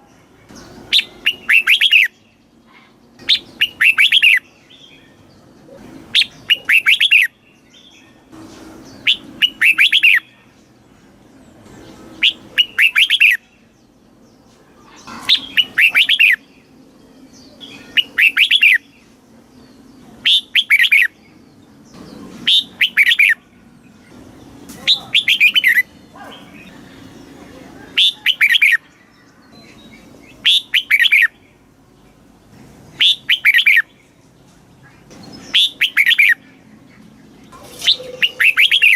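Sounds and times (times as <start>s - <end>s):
bird singing short phrases: 24.8s - 26.7s.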